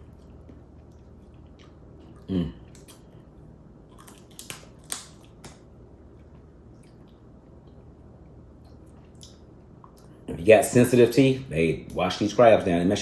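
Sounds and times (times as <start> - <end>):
crab shell cracking: 3.9 - 5.7.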